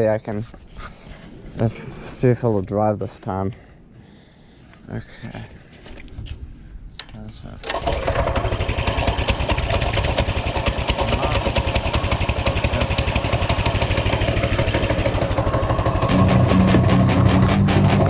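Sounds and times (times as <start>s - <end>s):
small engine running: 7.6s - 18.0s.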